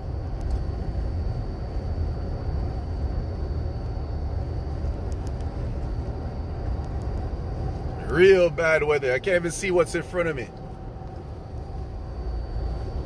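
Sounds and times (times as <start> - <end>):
car engine and tyre rumble: 0.0 - 13.0
faint clicks: 4.9 - 5.7, 6.7 - 7.3.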